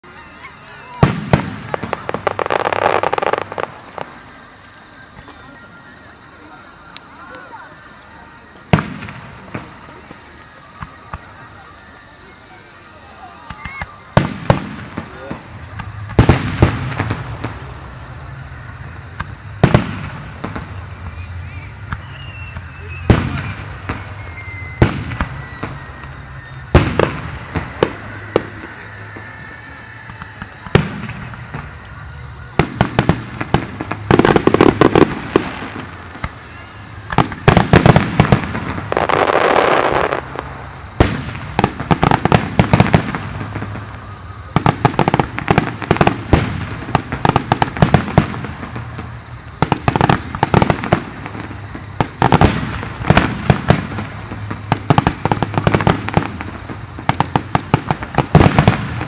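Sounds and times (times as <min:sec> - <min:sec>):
rapid crackling firework bangs: 0:00.0 - 0:05.5, 0:07.1 - 0:59.0
sustained hiss: 0:00.0 - 0:59.0
firework shells bursting: 0:13.5 - 0:59.0.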